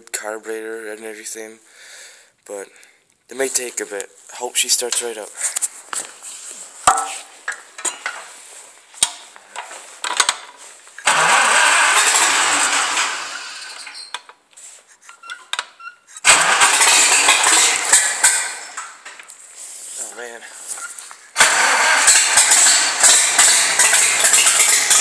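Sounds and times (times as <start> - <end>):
engine cranking not starting: 11.0 - 14.1, 15.6 - 19.2, 21.2 - 25.0.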